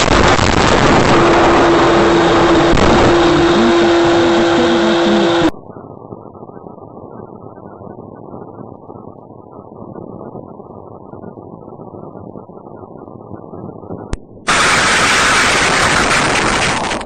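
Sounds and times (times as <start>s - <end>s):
vehicle road noise: 0.0s - 5.5s
steady mid-pitched tone: 0.0s - 5.6s
muffled engine rumble: 0.0s - 6.4s.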